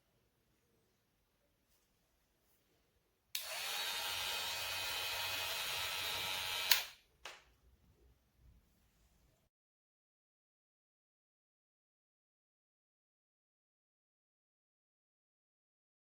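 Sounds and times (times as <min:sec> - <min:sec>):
hair clipper buzzing: 0:03.4 - 0:07.0.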